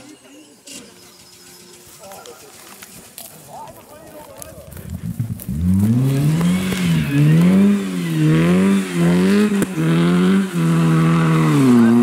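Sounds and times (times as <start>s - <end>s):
rally car engine revving: 5.0s - 12.0s.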